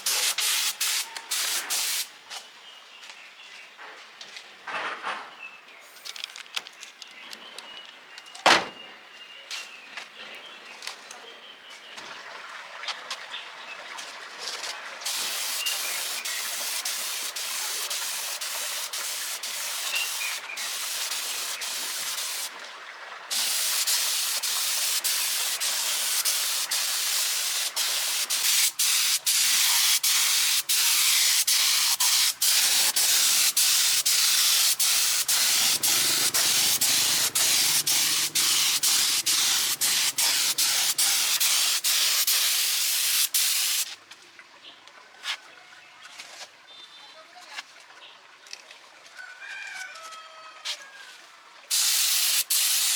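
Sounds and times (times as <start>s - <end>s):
compressed air spraying hiss: 0.0s - 2.1s, 15.1s - 22.5s, 23.3s - 43.9s, 51.7s - 52.9s.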